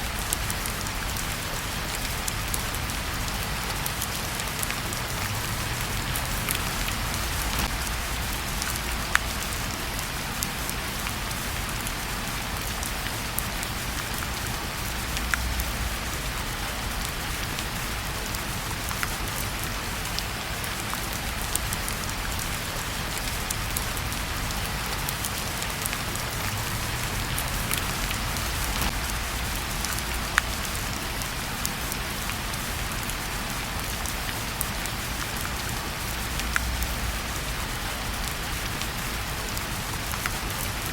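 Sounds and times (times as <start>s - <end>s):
steady rain falling: 0.0s - 40.9s
wood fire crackling: 0.0s - 40.9s.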